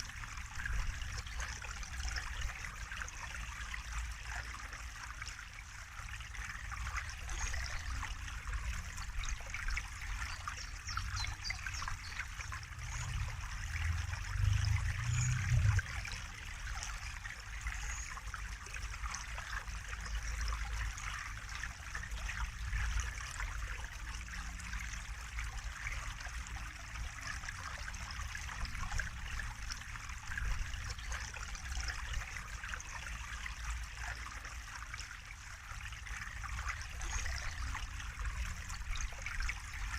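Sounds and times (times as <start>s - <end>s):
water trickling: 0.0s - 39.9s
low rumble: 12.6s - 16.1s.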